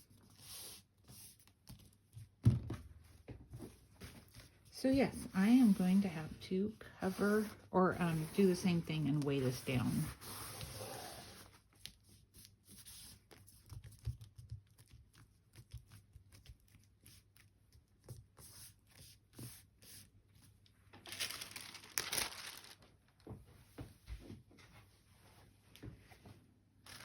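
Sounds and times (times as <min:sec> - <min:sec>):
craft materials rustling: 0:21.0 - 0:22.9
loud crinkling rustle: 0:21.0 - 0:23.0.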